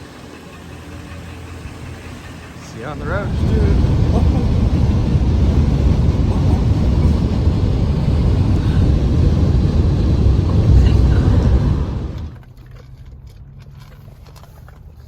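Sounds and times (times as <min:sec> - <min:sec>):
vehicle rumbling on road: 0:00.0 - 0:15.0.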